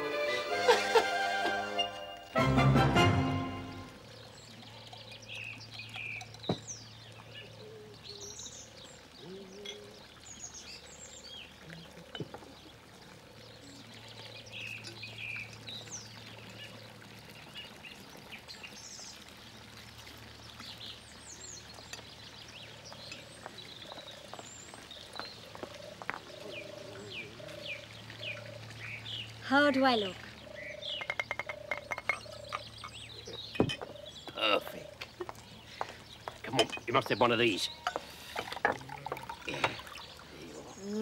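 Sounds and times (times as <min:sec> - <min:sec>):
small birds chirping: 0:03.7 - 0:19.6, 0:20.4 - 0:41.0.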